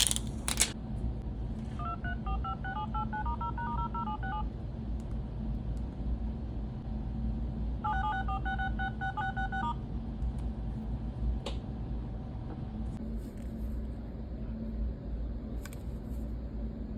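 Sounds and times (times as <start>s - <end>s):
phone dial-pad beeps: 1.8s - 4.4s, 7.9s - 9.8s.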